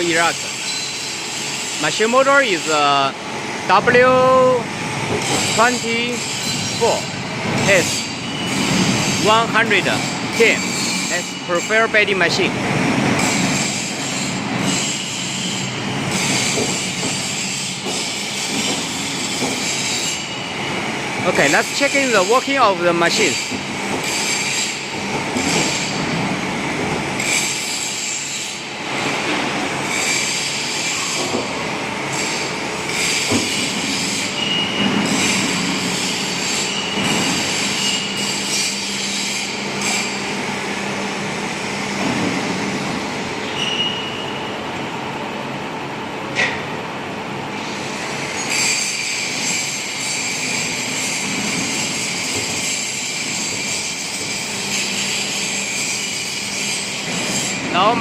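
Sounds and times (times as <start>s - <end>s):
high metallic squeals: 0.0s - 3.0s, 5.2s - 12.3s, 13.2s - 26.2s, 27.2s - 28.8s, 29.9s - 31.4s, 32.1s - 40.4s, 43.4s - 44.6s, 47.8s - 58.0s
hydraulic machine humming: 0.0s - 45.4s.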